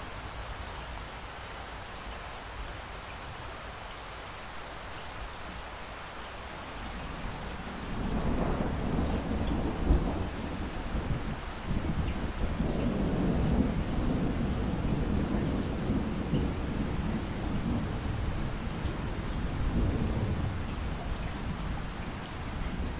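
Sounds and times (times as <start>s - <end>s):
steady rain falling: 0.0s - 22.9s
low rumble of thunder: 6.9s - 22.9s.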